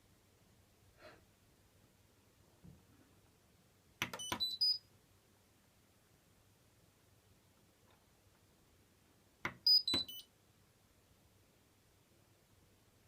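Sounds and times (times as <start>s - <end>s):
button clicks: 9.5s - 10.2s.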